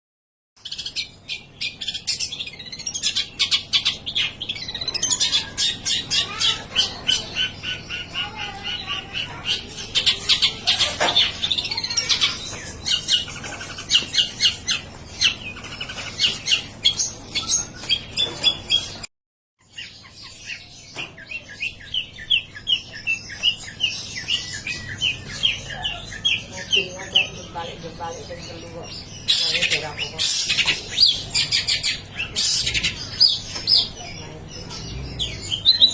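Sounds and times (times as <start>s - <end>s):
shrike singing harsh chatter: 2.7s - 19.0s.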